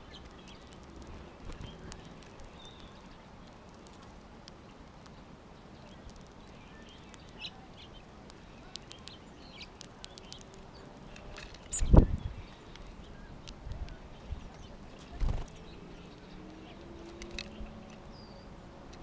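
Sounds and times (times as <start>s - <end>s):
songbirds chirping: 0.0s - 19.0s
small sharp clicks: 0.1s - 5.2s, 8.2s - 18.2s.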